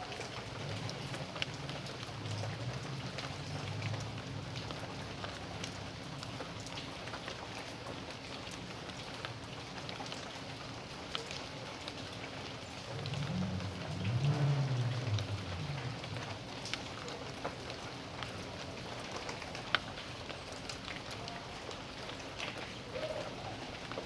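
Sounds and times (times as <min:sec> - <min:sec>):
raindrops ticking: 0:00.0 - 0:24.0
steady rain: 0:00.0 - 0:24.0
low rumble: 0:12.8 - 0:17.2.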